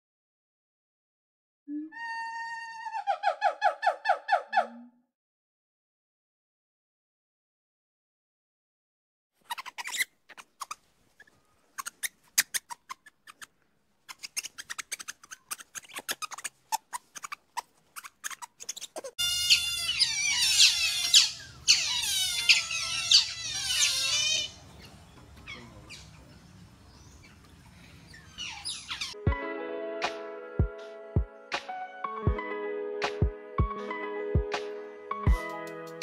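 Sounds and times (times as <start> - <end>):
otters chirping and squealing: 9.4 - 29.2.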